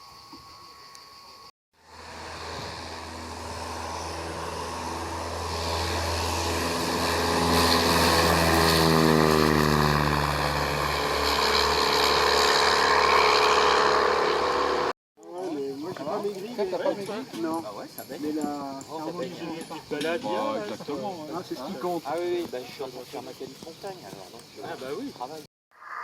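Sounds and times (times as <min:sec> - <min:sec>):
propeller aircraft flying past: 0:01.8 - 0:14.9.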